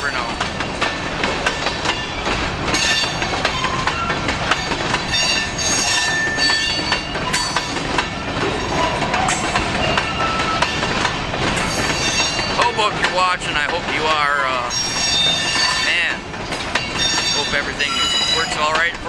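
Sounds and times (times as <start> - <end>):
steel wheels rumbling on rail: 0.0 - 19.0
wheel squeals: 1.6 - 12.6, 14.7 - 16.2, 16.8 - 18.9.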